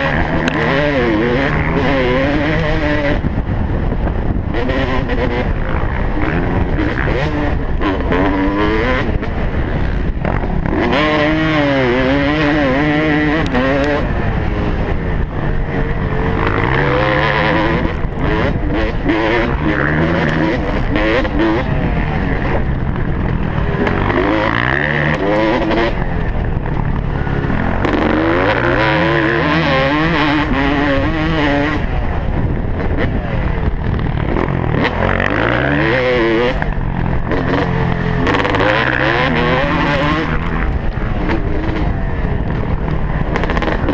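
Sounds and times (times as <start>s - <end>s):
motocross bike engine revving: 0.0s - 43.9s.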